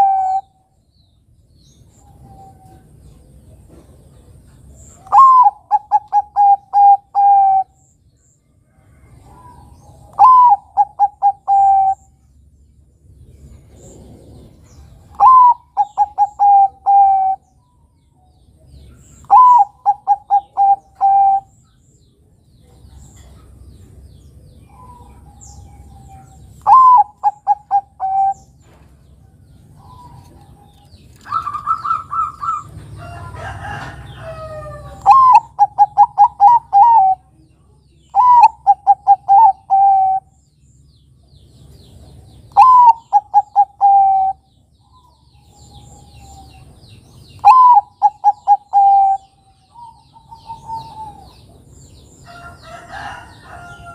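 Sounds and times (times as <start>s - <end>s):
dove cooing: 0.0s - 0.6s, 5.0s - 7.8s, 9.1s - 12.1s, 13.8s - 17.4s, 19.2s - 21.6s, 24.7s - 28.7s, 29.8s - 37.4s, 38.1s - 40.3s, 42.5s - 46.6s, 47.4s - 51.5s
higher bird call with chirping: 0.0s - 0.8s, 1.6s - 2.9s, 4.8s - 8.0s, 9.2s - 12.3s, 13.9s - 18.0s, 18.8s - 21.9s, 24.1s - 40.8s, 42.4s - 53.9s.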